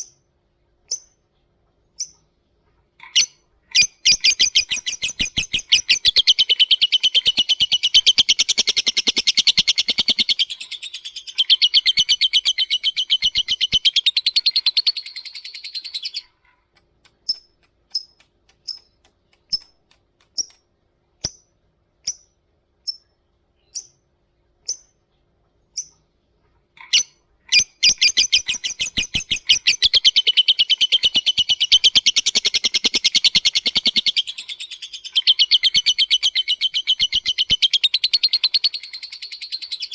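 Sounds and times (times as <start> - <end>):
lovebird chattering trill: 3.0 - 16.3, 26.8 - 39.9
lovebird ticking chirps: 3.2 - 16.3, 17.1 - 20.6, 21.2 - 24.0, 26.9 - 39.9.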